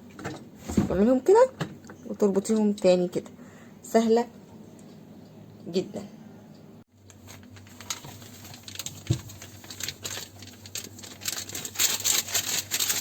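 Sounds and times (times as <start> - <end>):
crackling and fizzing: 7.0 - 13.0.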